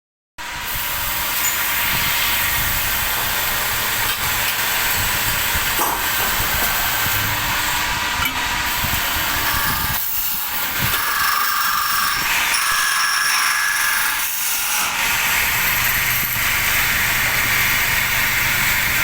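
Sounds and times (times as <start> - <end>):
lathe machining hiss: 0.6 - 14.0.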